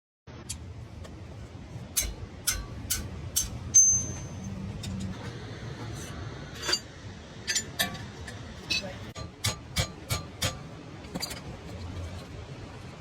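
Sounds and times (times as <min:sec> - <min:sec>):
low steady hum: 0:00.3 - 0:13.0
metallic clinks of tools: 0:02.0 - 0:05.1.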